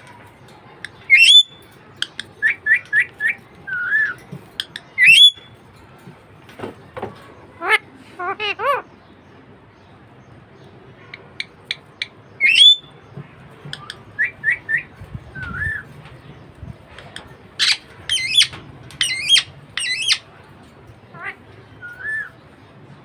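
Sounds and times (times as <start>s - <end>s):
budgerigar chirping and warbling: 17.6s - 20.3s.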